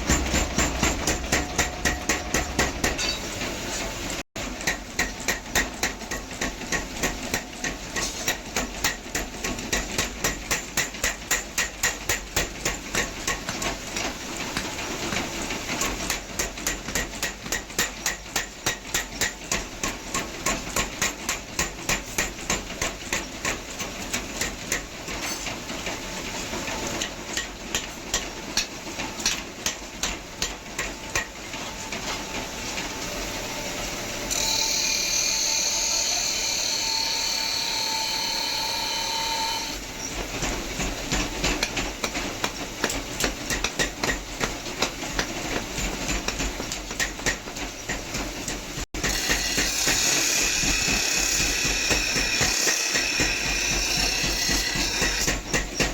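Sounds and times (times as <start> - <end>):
hammer striking iron on anvil: 0.0 - 3.4, 4.6 - 13.7, 15.8 - 25.5, 27.0 - 31.4, 40.8 - 55.9.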